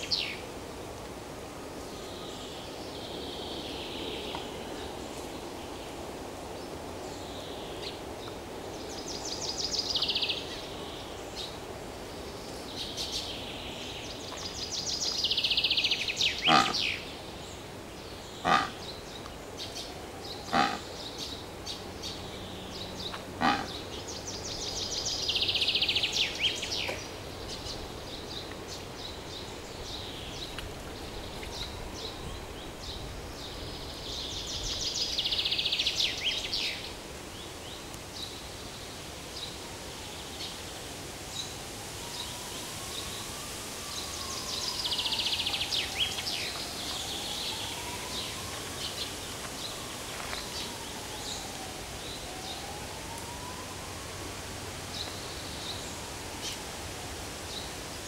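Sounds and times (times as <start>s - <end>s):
bird trilling: 16.4s - 16.9s, 20.5s - 20.8s.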